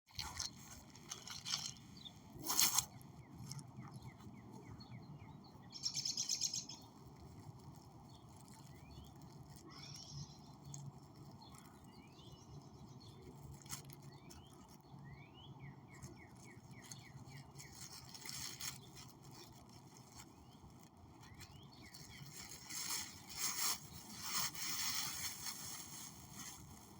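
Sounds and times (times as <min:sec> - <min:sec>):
small birds chirping: 0:00.1 - 0:26.9.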